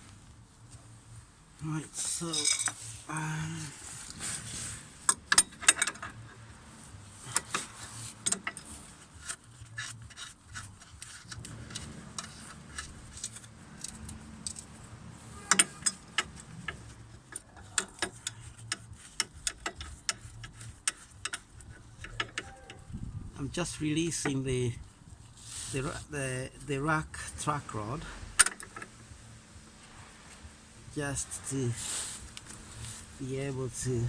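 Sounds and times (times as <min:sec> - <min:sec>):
metallic clicks of hand tools: 0:05.0 - 0:06.2.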